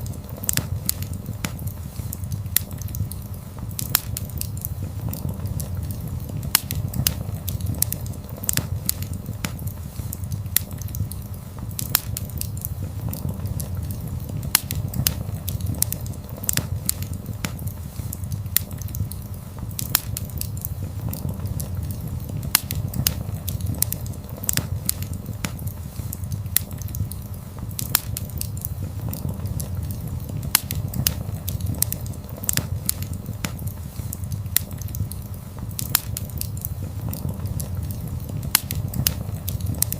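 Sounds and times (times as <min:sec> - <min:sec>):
burning logs crackling and popping: 0:00.0 - 0:39.9
low rumble of flames: 0:00.0 - 0:39.9.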